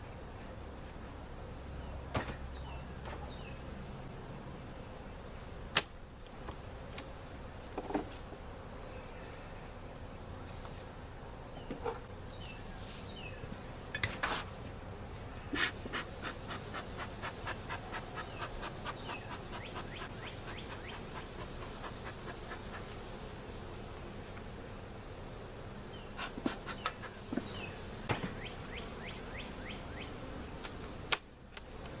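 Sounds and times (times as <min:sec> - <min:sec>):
honeybees buzzing: 0:00.0 - 0:32.0
hive frames clicking and scraping: 0:15.6 - 0:23.1, 0:26.1 - 0:28.5.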